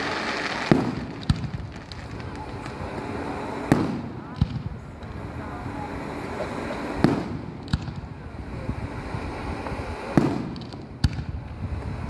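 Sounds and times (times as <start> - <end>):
firework shells bursting: 0.0 - 5.2
low rumble of fireworks: 0.0 - 12.0.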